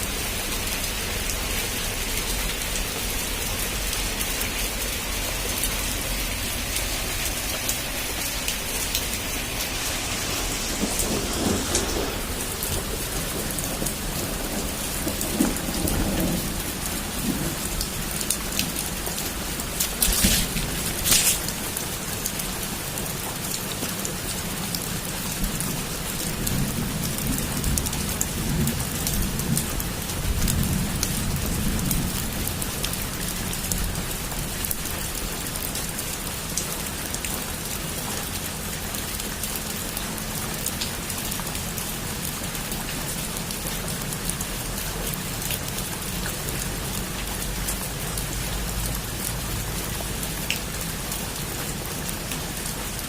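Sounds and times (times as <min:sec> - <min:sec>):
heavy rain falling: 0:00.0 - 0:53.0
raindrops ticking on a surface: 0:00.0 - 0:53.0
distant thunder rumble: 0:04.9 - 0:21.9.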